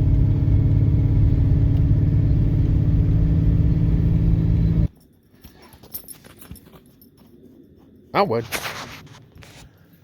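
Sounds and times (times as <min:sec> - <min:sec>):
road noise inside cab: 0:00.0 - 0:04.9
truck engine drone: 0:00.0 - 0:04.9.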